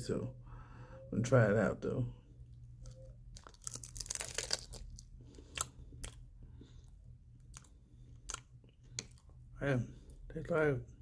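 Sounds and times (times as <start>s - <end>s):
seaweed snack crackling: 3.3s - 6.2s.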